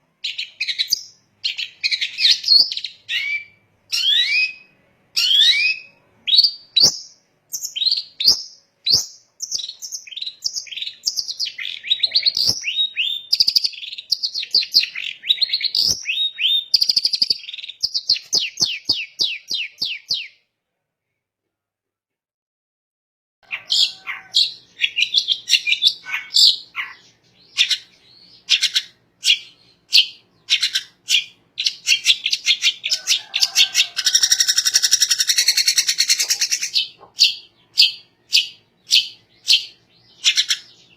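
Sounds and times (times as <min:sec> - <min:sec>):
fast bird trill: 0:23.4 - 0:40.9.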